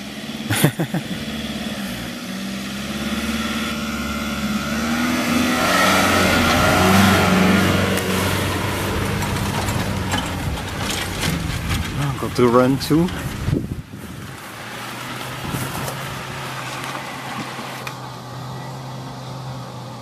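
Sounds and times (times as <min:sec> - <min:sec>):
engine working under load: 0:00.0 - 0:20.0.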